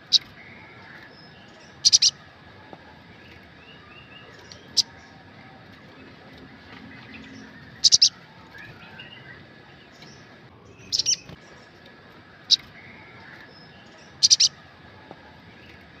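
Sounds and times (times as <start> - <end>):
sunbird high-pitched chirps: 0.0 - 2.2, 3.6 - 5.2, 7.0 - 11.6, 12.5 - 14.6.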